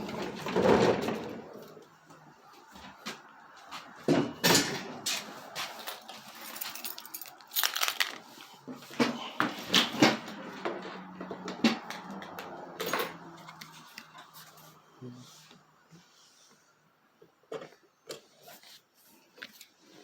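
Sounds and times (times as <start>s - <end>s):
hard objects knocking and clattering: 6.6s - 8.2s.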